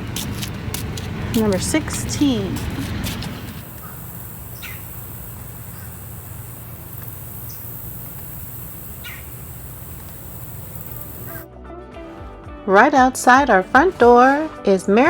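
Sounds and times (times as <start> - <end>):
steady low rumble: 0.0 - 11.4
steady high hiss: 3.5 - 11.4
short bird calls: 8.9 - 9.7.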